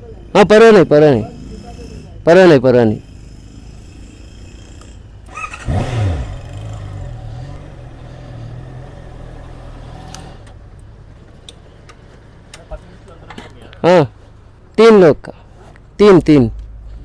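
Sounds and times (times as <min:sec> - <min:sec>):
vehicle engine revving: 0:03.4 - 0:10.6.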